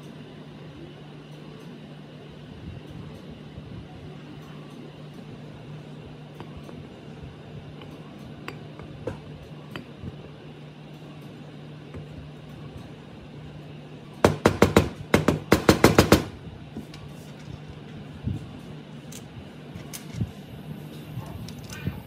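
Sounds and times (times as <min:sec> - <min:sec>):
steady low hum: 0:00.0 - 0:22.0
rapid sharp knocks: 0:14.2 - 0:16.3.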